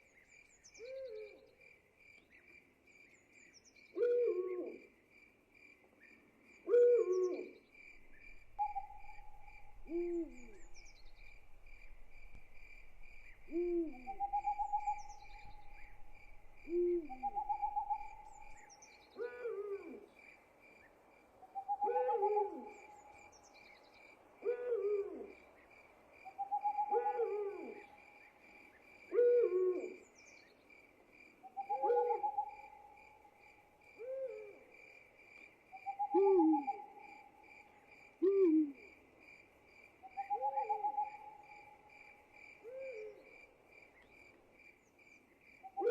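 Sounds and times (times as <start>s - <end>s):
owl hooting: 8.2s - 11.4s, 13.2s - 18.6s, 21.6s - 22.8s, 26.4s - 28.0s, 31.5s - 32.8s, 35.8s - 37.1s, 38.2s - 38.9s, 40.1s - 41.8s.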